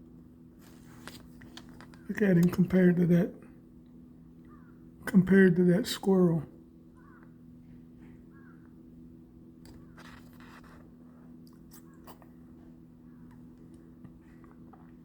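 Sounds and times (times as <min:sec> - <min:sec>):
faint low hum: 0:00.0 - 0:15.0
soft clicks and crunching: 0:00.6 - 0:02.6, 0:09.6 - 0:12.6.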